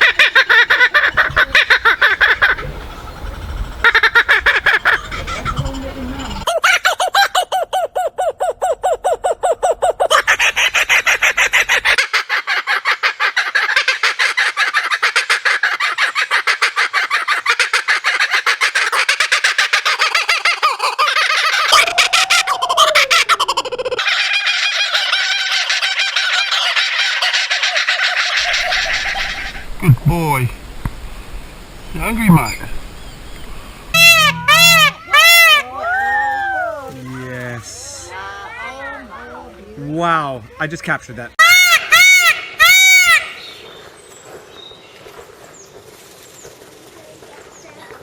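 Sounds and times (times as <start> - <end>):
kookaburras laughing: 0.0 - 30.4, 34.0 - 35.6.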